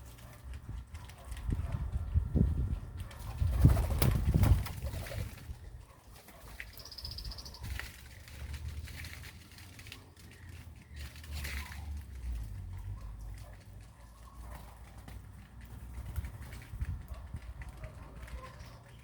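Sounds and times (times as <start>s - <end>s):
birds rustling and clicking: 0.0s - 19.0s
bird trill: 6.6s - 8.0s.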